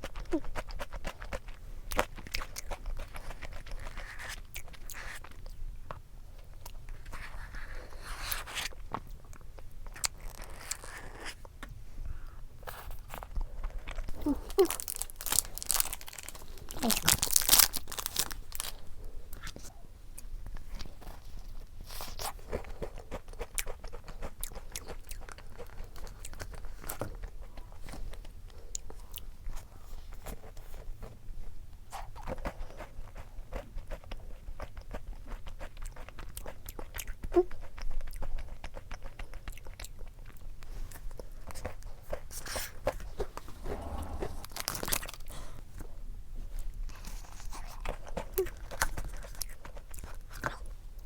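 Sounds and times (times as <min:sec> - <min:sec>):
crisp crunches of pastry: 0:00.0 - 0:11.7, 0:12.6 - 0:30.8, 0:46.5 - 0:51.0
wet chewing sounds: 0:00.0 - 0:51.0.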